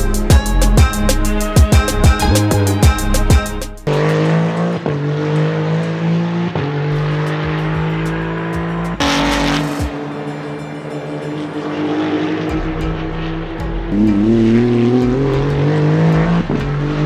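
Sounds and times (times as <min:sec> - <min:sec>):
music with drum beat: 0:00.0 - 0:04.2, 0:07.2 - 0:10.0, 0:13.6 - 0:17.0
race car engine: 0:03.8 - 0:17.0.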